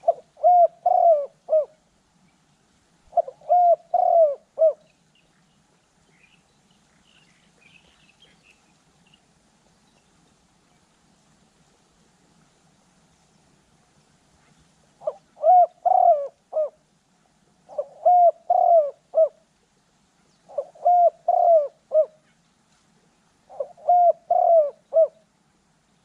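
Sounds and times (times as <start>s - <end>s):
dove cooing: 0.0s - 1.8s, 3.0s - 5.0s, 15.0s - 16.9s, 17.6s - 19.5s, 20.5s - 22.4s, 23.5s - 25.3s.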